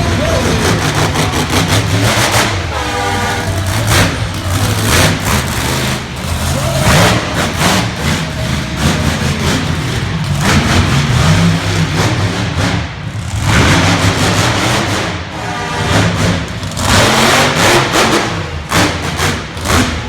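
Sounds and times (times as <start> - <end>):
monster truck engine revving: 0.0 - 20.0.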